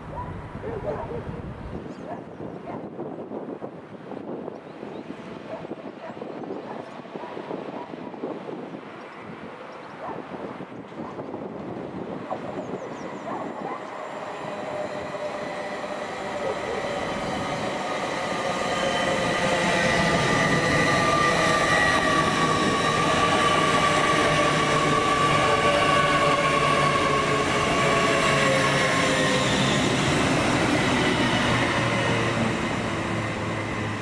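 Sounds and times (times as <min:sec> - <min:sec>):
train high whine: 0:03.0 - 0:34.0
train wheels rumbling on rails: 0:11.0 - 0:34.0.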